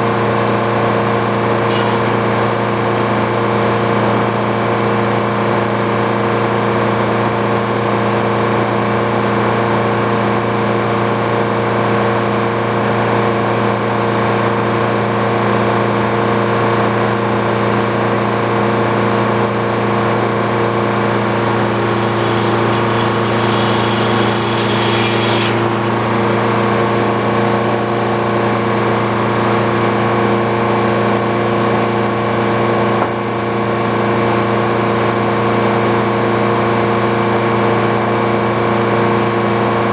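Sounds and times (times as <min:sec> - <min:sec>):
sawmill engine running: 0:00.0 - 0:07.3, 0:17.3 - 0:32.9
faint high whine: 0:21.2 - 0:26.6.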